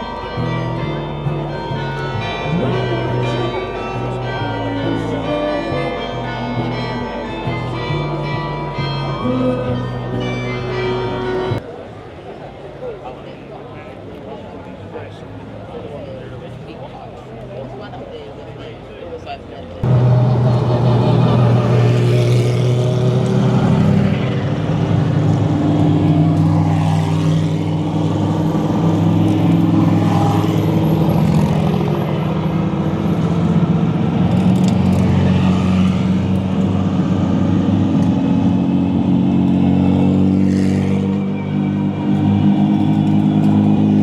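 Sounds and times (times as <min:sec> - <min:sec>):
race car engines at low revs: 0:19.5 - 0:44.0.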